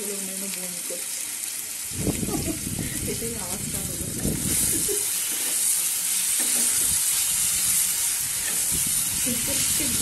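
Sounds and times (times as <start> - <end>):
spice paste sizzling in a pan: 0.0 - 10.0
wooden spatula scraping a pan: 4.5 - 7.1.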